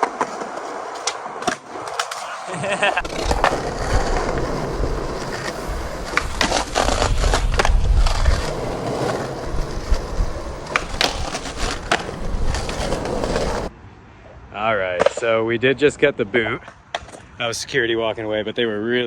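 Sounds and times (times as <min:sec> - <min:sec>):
skateboard clacks: 0:00.0 - 0:13.7, 0:15.0 - 0:15.3
skateboard wheels rolling on pavement: 0:00.0 - 0:13.8.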